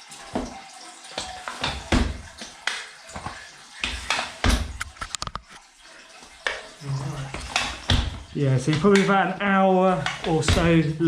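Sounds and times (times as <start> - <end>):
knocks and thuds: 1.6 - 2.4, 7.2 - 9.0, 10.0 - 10.9.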